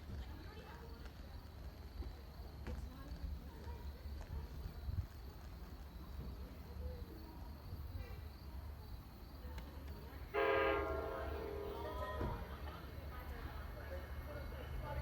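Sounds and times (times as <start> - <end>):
train horn blast: 10.3 - 12.4.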